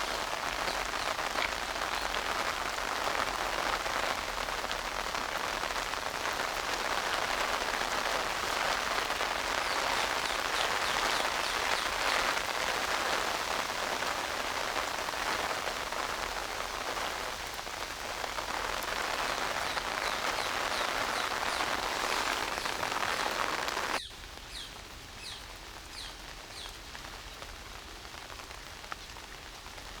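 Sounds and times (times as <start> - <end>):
rain pattering: 0.0 - 30.0.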